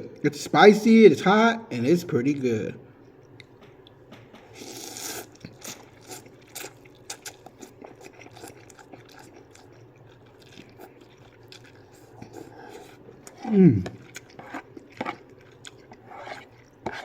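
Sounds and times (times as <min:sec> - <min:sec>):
soft chewing with mouth clicks: 0:03.0 - 0:17.0
person slurping noodles: 0:04.6 - 0:09.6, 0:15.8 - 0:17.0.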